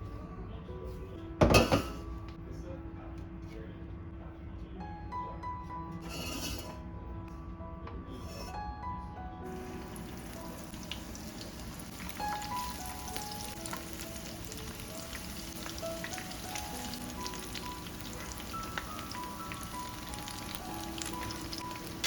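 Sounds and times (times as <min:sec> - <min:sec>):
soft background music: 0:00.0 - 0:22.0
food sizzling in hot oil: 0:09.5 - 0:22.0.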